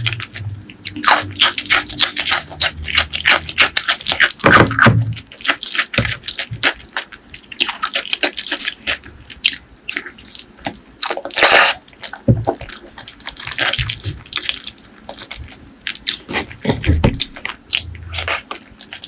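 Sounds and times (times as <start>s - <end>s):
wet chewing mouth sounds: 0.0s - 19.0s.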